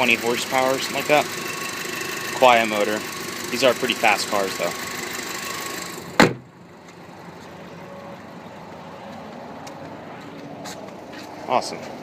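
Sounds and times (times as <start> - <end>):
car engine idling muffled: 0.0 - 9.4
car panel slamming: 6.1 - 6.5.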